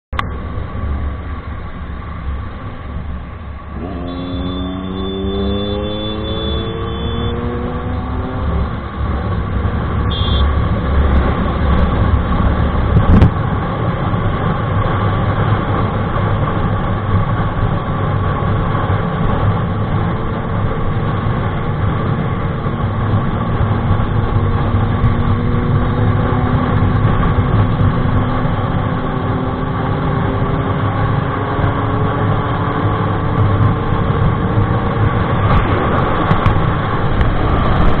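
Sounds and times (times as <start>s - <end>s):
motorcycle engine running: 0.4s - 13.3s
sharp exhaust crack: 3.6s - 12.2s.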